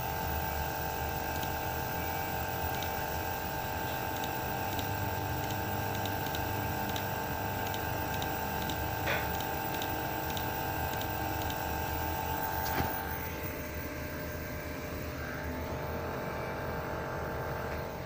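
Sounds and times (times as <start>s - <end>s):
small machine humming: 0.0s - 18.0s
faint regular ticking: 1.1s - 12.7s.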